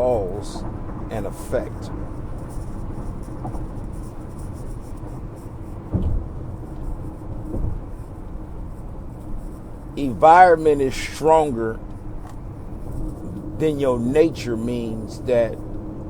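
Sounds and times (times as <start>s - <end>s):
vehicle running rumble: 0.0s - 16.0s
soft low thumps: 5.8s - 6.6s.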